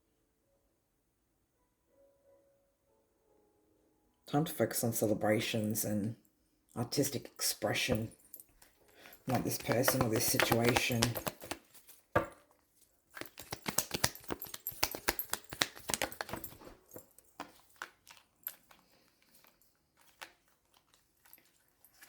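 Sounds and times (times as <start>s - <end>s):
cards shuffled by hand: 9.0s - 12.4s, 13.1s - 22.0s.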